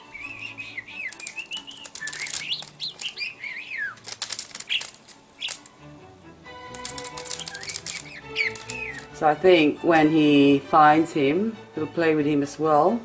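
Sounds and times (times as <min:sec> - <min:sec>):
budgerigar chirping and warbling: 0:00.0 - 0:05.7, 0:07.3 - 0:09.1
sharp rustling clicks: 0:00.2 - 0:05.8, 0:06.6 - 0:09.2.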